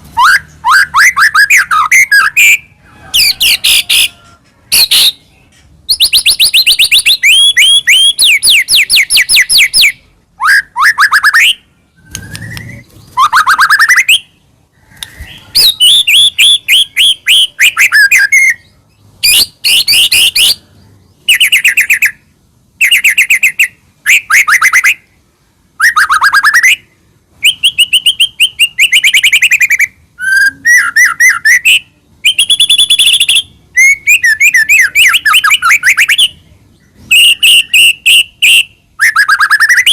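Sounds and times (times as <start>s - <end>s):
bird singing whistled phrases: 0.2s - 5.3s, 5.9s - 20.6s, 21.2s - 22.2s, 22.8s - 25.1s, 25.8s - 36.4s, 37.1s - 39.9s.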